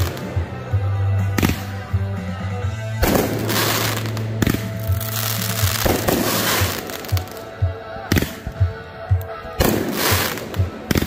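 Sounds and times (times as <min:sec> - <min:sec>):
music with bass beat: 0:00.0 - 0:11.0
fireworks bangs with crackling: 0:01.4 - 0:01.8, 0:03.0 - 0:07.5, 0:09.6 - 0:11.0.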